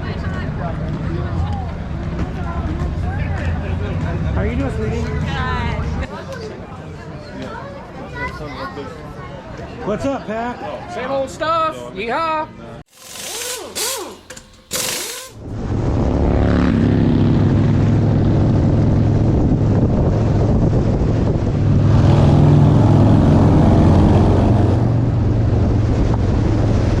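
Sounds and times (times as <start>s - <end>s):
short noises: 12.9s - 15.5s
motorcycle engine pulling away: 13.0s - 20.6s.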